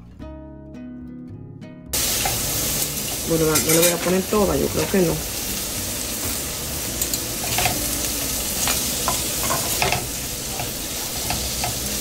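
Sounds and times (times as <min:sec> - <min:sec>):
food sizzling in a metal pot: 0:02.0 - 0:12.0
metal spoon scraping a pot: 0:03.5 - 0:04.2.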